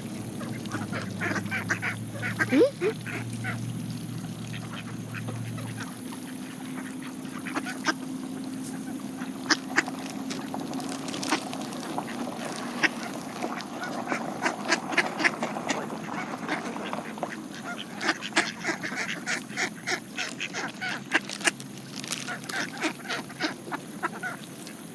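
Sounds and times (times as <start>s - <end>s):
ducks quacking: 0.0s - 10.5s, 11.2s - 24.8s
bills clicking on seed: 20.2s - 23.3s.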